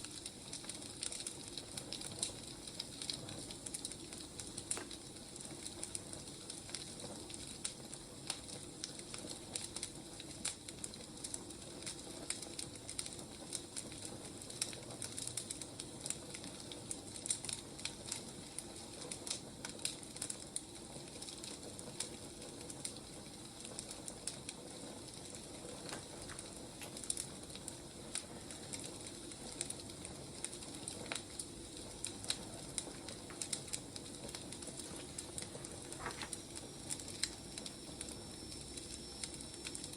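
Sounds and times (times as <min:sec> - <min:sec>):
firewood crackling and popping: 0:00.0 - 0:39.9.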